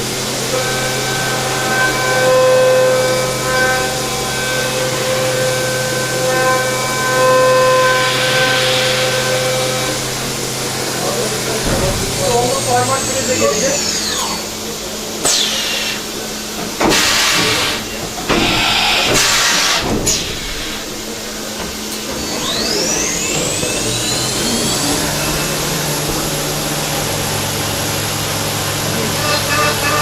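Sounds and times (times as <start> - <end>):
machine spindle whine: 0.0 - 30.0
loud air hissing blasts: 8.0 - 16.3, 16.9 - 21.5.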